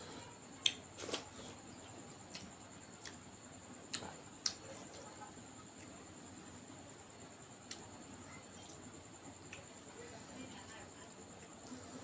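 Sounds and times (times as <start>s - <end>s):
faint high-pitched whine: 0.0s - 12.0s
chewing mouth clicks and smacks: 2.3s - 3.2s.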